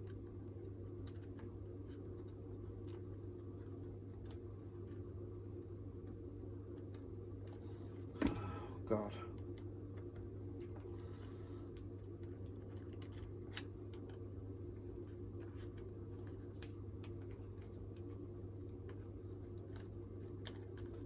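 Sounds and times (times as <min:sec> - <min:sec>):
low electrical hum: 0:00.0 - 0:21.0
small parts clicking and tapping: 0:11.7 - 0:14.2, 0:15.4 - 0:21.0.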